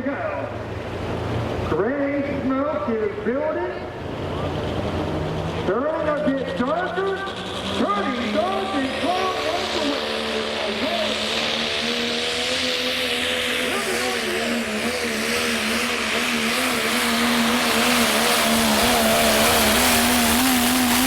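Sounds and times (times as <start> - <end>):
diesel truck engine at full throttle: 0.0 - 21.0.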